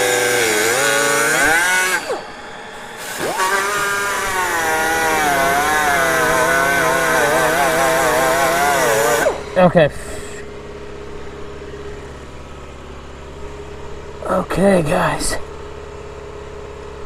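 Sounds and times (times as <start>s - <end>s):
die grinder whining: 0.0s - 12.5s.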